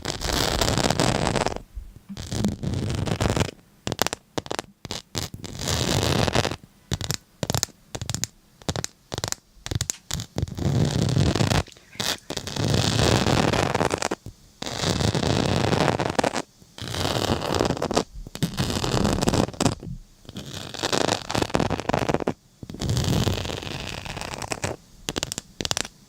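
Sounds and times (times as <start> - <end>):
scratching strokes: 9.7 - 14.1.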